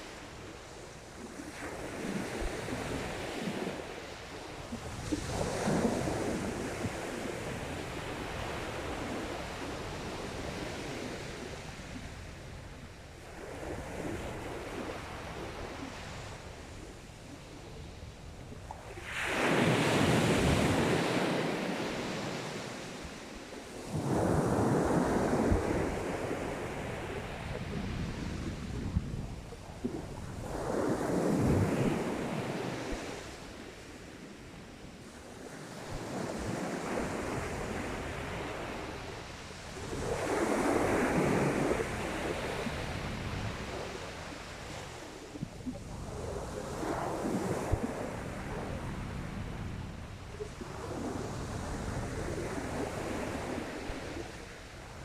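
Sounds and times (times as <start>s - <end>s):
waves washing up shingle beach: 19.0s - 33.9s.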